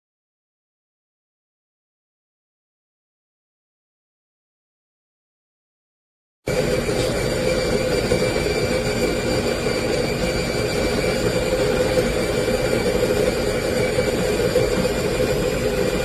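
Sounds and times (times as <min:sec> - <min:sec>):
coffee grinder running: 0:06.5 - 0:16.0.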